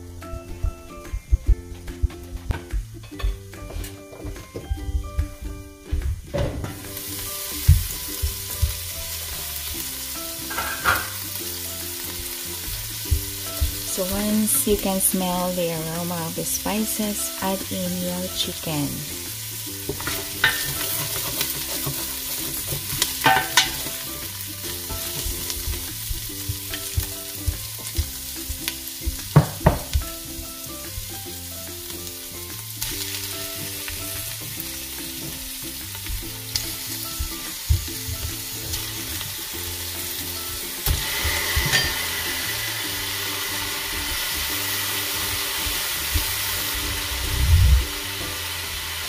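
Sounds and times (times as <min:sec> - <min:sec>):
aromatics sizzling in oil: 0:00.0 - 0:49.0
wooden spatula stirring: 0:19.8 - 0:29.4
spatula knocking against pot: 0:22.8 - 0:23.9.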